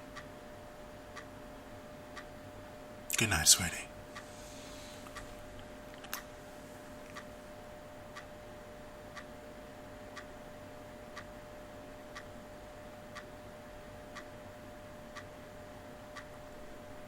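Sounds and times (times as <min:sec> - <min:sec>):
faint steady hum: 0:00.0 - 0:17.0
clock ticking: 0:14.1 - 0:14.4.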